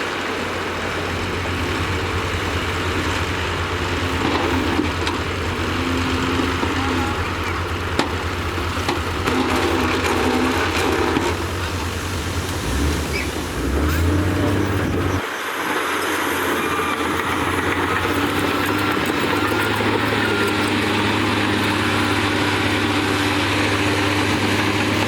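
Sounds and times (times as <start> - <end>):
heavy machinery diesel engines: 0.0 - 25.0
metal clanking: 0.9 - 15.2.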